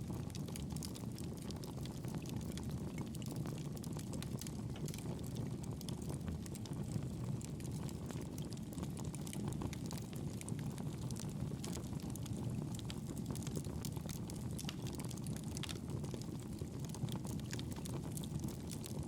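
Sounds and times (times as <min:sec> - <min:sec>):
campfire crackling: 0:00.1 - 0:19.0.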